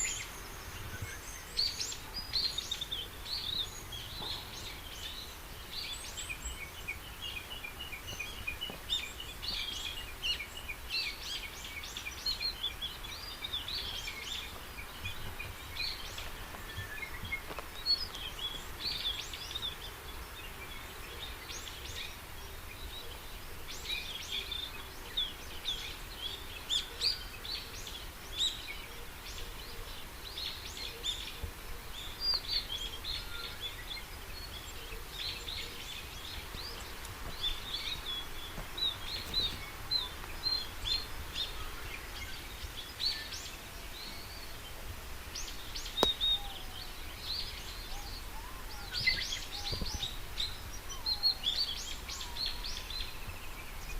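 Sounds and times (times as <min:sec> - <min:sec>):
birds chirping and whistling: 0:37.3 - 0:41.6.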